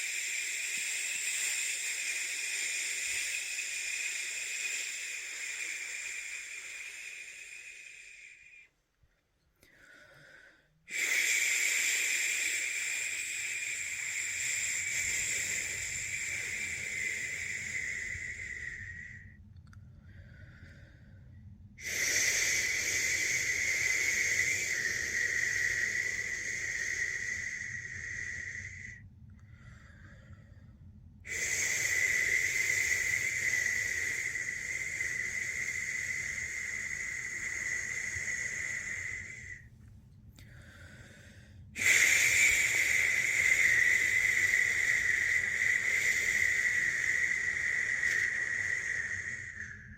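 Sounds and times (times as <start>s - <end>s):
person shushing: 31.3s - 39.6s, 41.8s - 49.9s.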